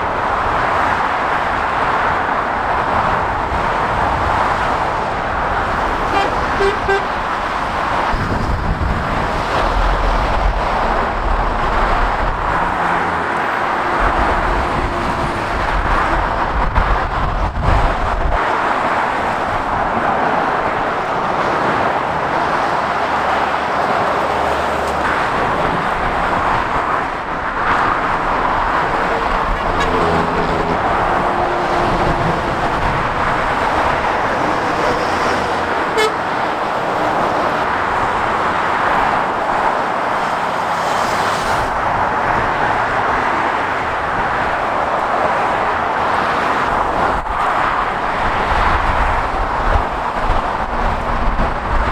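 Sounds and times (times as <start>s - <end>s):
tyres of passing traffic: 0.0s - 51.9s.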